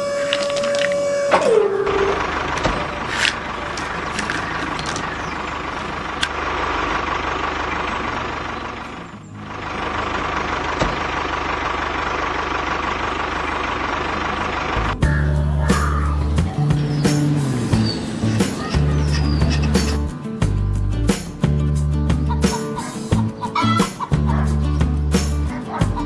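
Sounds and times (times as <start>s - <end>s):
music: 0.1s - 6.3s, 14.4s - 26.0s.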